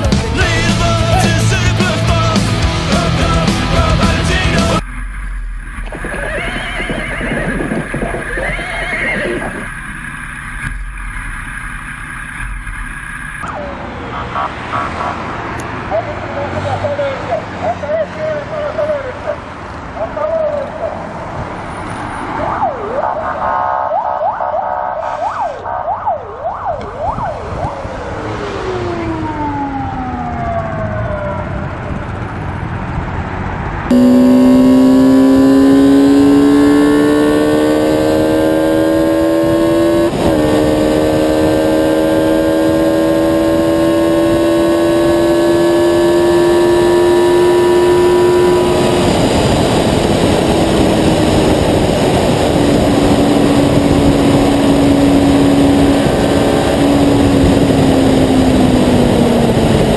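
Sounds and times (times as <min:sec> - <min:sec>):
emergency siren wailing: 0:22.3 - 0:32.3, 0:33.9 - 0:59.9
engine at high revs: 0:27.9 - 0:59.9.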